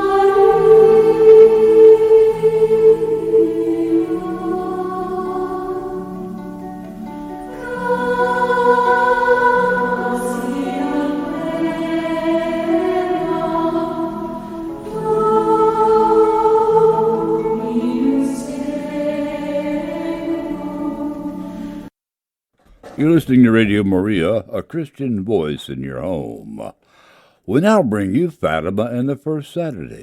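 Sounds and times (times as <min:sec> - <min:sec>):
choir singing in harmony: 0:00.0 - 0:21.9.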